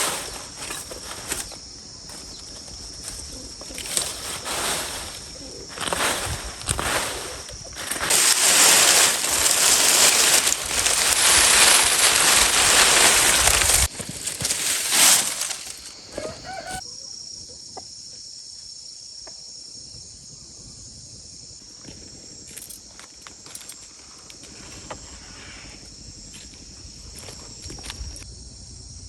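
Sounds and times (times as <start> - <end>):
loud rustling: 0.0 - 16.8
high insect drone: 0.0 - 29.0
chicken clucking: 16.1 - 16.9.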